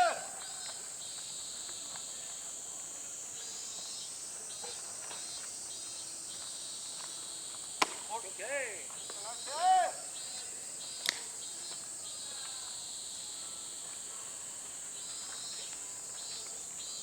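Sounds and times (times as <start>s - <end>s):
people shouting: 0.0s - 0.6s, 8.1s - 10.1s
faint distant voices: 0.0s - 17.0s
insects droning: 0.0s - 17.0s
sharp crack: 7.8s - 8.3s.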